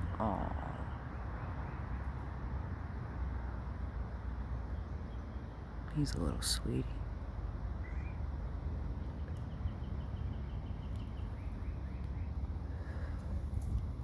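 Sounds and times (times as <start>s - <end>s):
faint songbird chirps: 0.0s - 14.0s.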